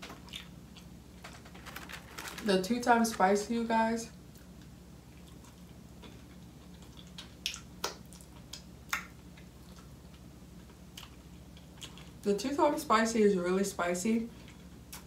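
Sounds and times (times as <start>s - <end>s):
person chewing fries: 0.0s - 2.4s, 4.2s - 12.2s, 14.4s - 15.0s
steady low hum: 0.0s - 15.0s.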